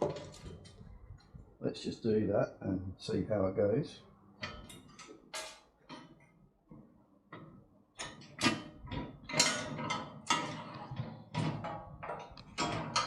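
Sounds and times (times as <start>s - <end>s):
metal parts clanking and knocking: 7.3s - 13.0s.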